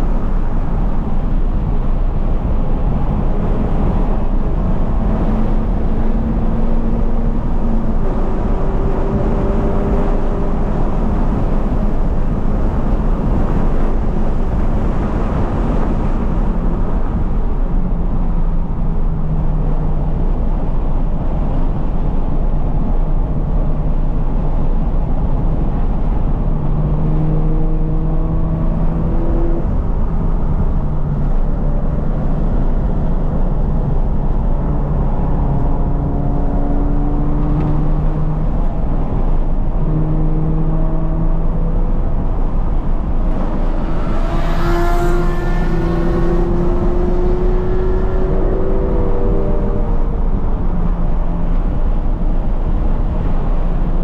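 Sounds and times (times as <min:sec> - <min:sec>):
car engine revving: 0:02.2 - 0:16.4, 0:26.6 - 0:54.0.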